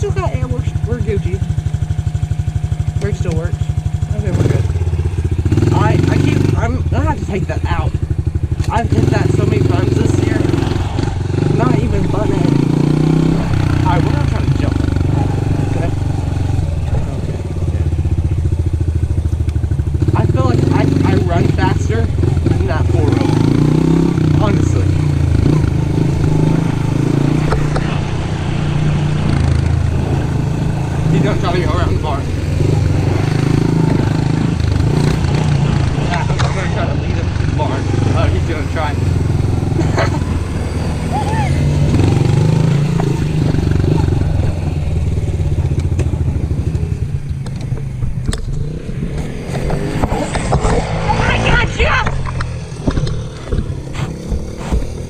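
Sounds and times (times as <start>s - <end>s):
motorbike engine running: 0.0s - 55.0s.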